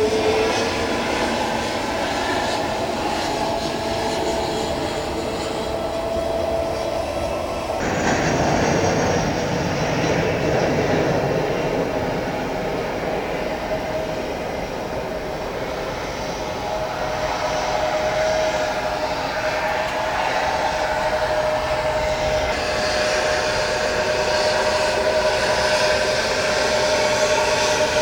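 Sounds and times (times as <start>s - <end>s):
jet engine whine: 0.0s - 28.0s
jet engines rushing: 0.0s - 28.0s.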